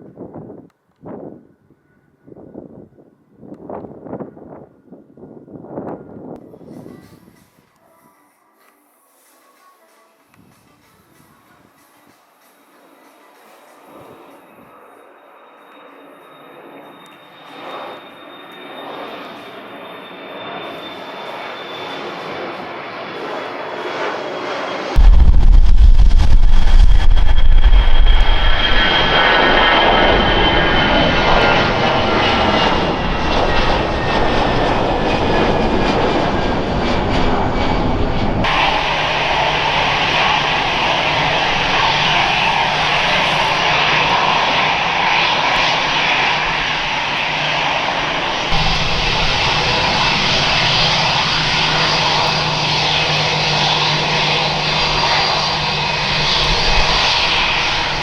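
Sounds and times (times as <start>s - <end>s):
jet engines roaring with whine: 12.8s - 58.0s
low hum: 25.0s - 34.9s, 35.6s - 58.0s.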